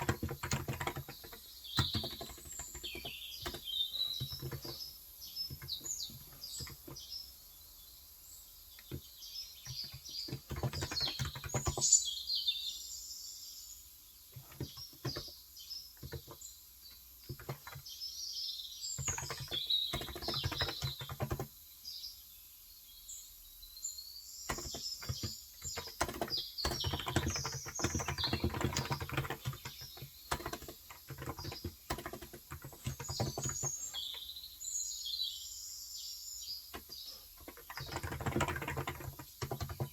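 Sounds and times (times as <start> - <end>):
keyboard typing: 0.0 - 7.1, 8.8 - 12.0, 14.4 - 15.3, 16.0 - 16.4, 17.2 - 17.9, 19.0 - 21.5, 24.5 - 34.2, 36.7 - 39.9
birds chirping: 0.0 - 39.9.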